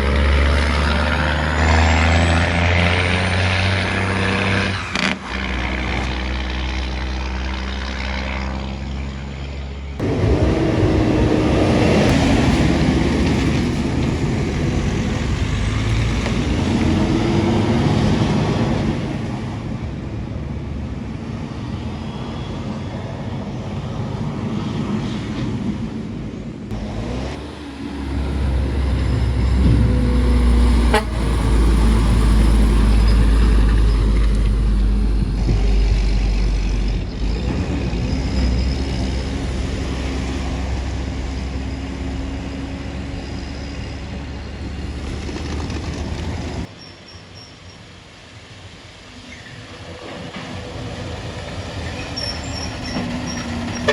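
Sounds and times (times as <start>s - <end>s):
truck engine rumbling: 0.0s - 46.8s, 47.8s - 53.9s
truck horn toot: 28.2s - 32.6s, 53.6s - 53.9s.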